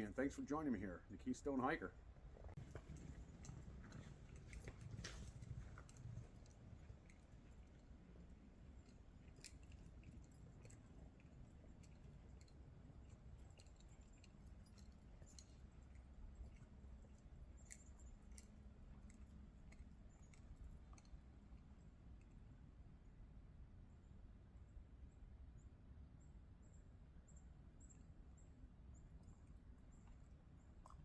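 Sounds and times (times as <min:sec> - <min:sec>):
faint low rumble: 0:00.0 - 0:31.0
tiny clicks: 0:02.7 - 0:22.4.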